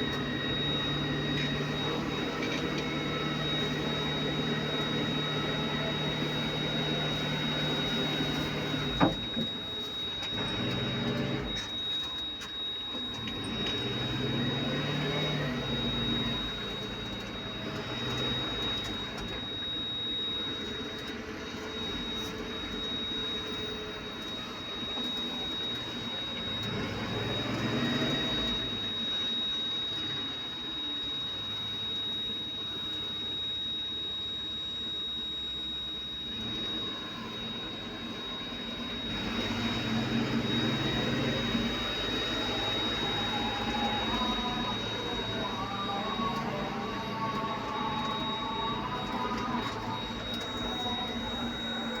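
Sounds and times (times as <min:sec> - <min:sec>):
high-pitched whine: 0:00.0 - 0:52.0
heavy machinery engine: 0:38.3 - 0:52.0.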